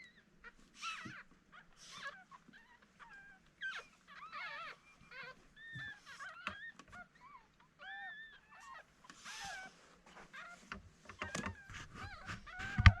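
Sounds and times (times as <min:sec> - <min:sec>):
puppies whimpering and squeaking: 0:00.0 - 0:13.0
rustling: 0:08.3 - 0:13.0.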